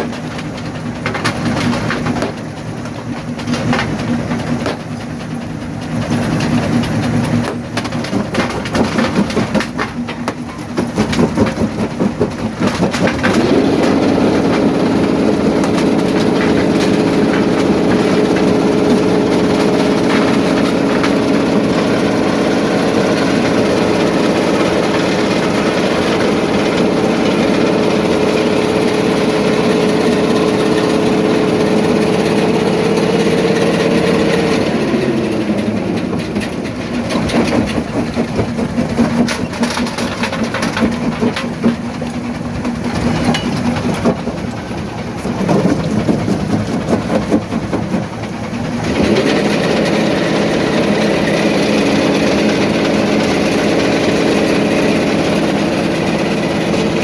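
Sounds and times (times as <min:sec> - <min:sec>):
rock crusher knocking and crunching: 0:00.0 - 0:57.0
machinery engine drone: 0:12.6 - 0:40.6, 0:41.2 - 0:57.0.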